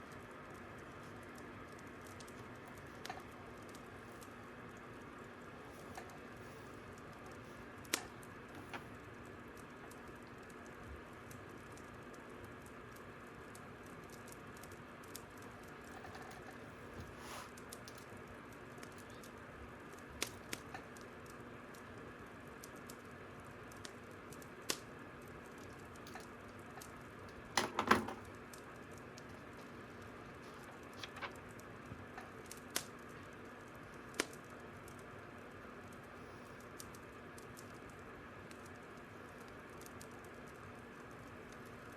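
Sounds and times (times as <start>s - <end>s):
fire crackling: 0.0s - 27.6s, 28.2s - 41.9s
soft steady hiss: 0.0s - 41.9s
pops and snaps: 23.7s - 24.9s, 34.0s - 35.0s.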